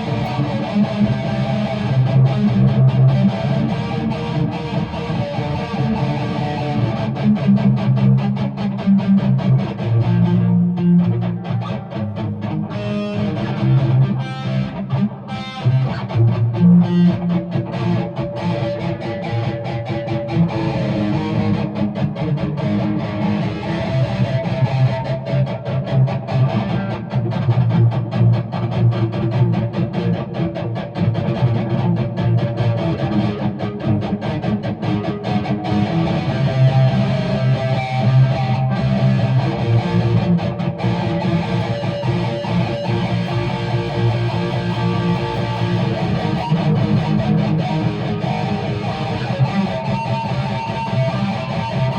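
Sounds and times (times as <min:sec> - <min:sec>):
guitar strumming: 0:00.0 - 0:51.9.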